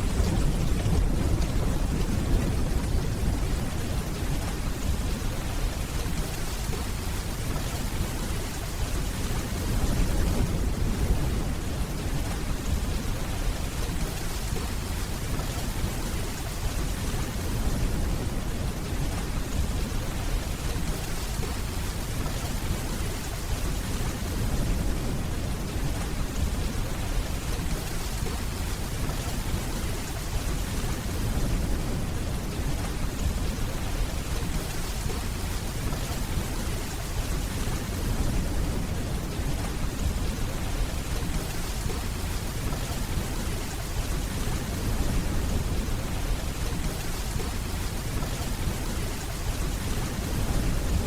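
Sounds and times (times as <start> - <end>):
distant thunder rumbling: 0.0 - 5.5
steady rainfall: 0.0 - 51.0.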